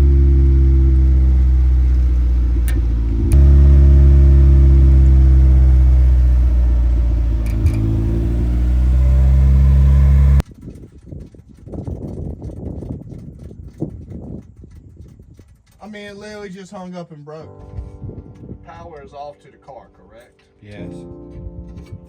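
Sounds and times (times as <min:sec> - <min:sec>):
car engine fast idle: 0:00.0 - 0:10.4.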